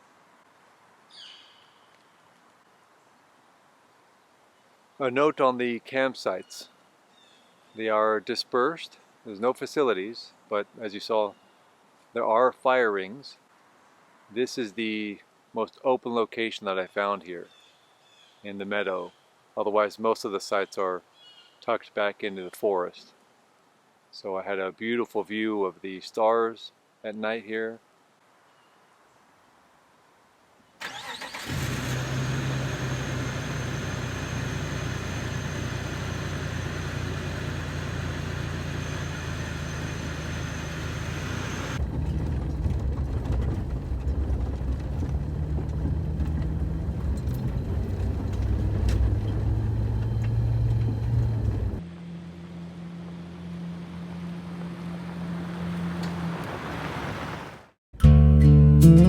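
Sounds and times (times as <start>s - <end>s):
car engine running: 31.5s - 57.3s.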